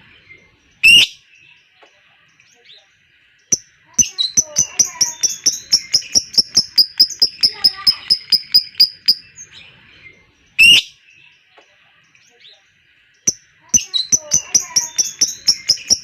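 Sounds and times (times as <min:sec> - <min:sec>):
lovebird chattering trill: 0:03.5 - 0:09.4, 0:13.3 - 0:16.0.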